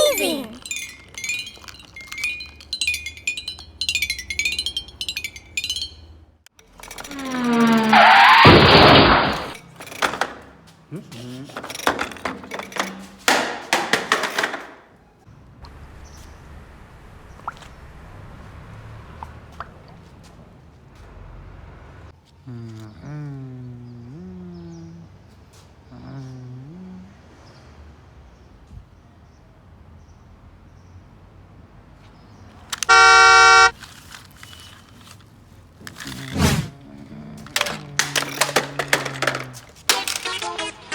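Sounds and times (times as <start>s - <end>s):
objects knocking and clattering: 0.1s - 14.9s, 37.3s - 40.9s
car horn honk: 32.8s - 33.8s
short rushing noise: 36.2s - 36.7s.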